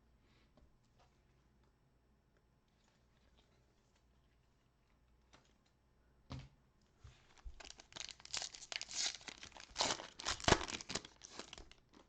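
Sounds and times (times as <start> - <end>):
wrapper tearing and crinkling: 7.3 - 12.0.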